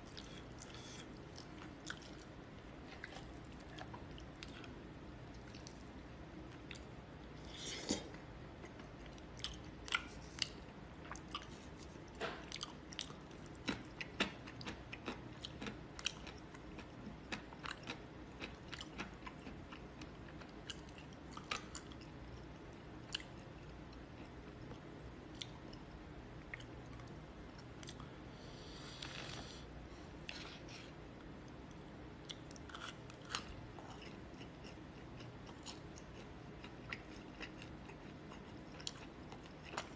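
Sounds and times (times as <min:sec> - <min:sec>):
person chewing crunchy food: 0:00.0 - 0:05.9, 0:06.5 - 0:28.1, 0:32.2 - 0:39.9.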